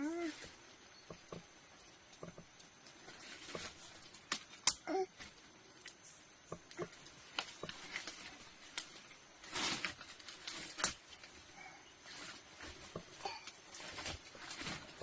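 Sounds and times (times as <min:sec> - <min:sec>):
short rustles: 0:07.4 - 0:15.0.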